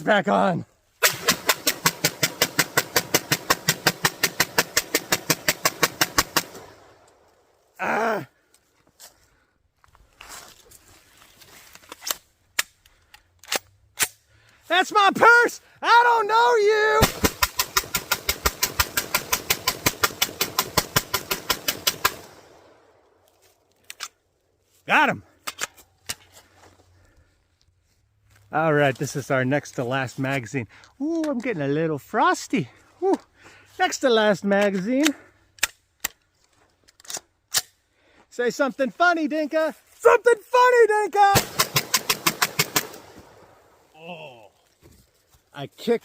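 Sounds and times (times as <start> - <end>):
rapid pistol gunfire: 1.0 - 6.7, 17.0 - 22.4, 41.3 - 43.1
rapid sharp clicks: 1.0 - 6.7, 17.0 - 22.4, 41.4 - 43.1.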